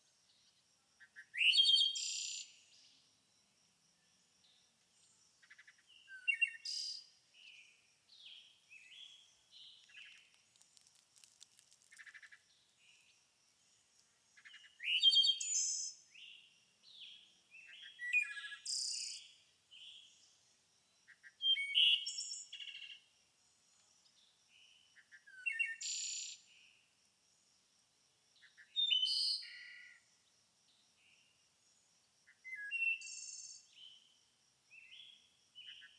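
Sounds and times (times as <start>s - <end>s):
songbirds chirping and calling: 14.3s - 20.3s.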